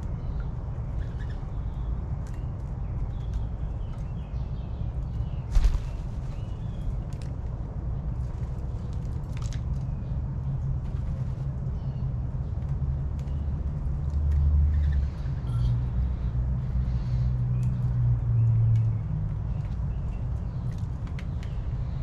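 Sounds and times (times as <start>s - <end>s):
faint bird chirps and clicks: 0.0s - 7.5s, 11.0s - 16.0s, 17.3s - 22.0s.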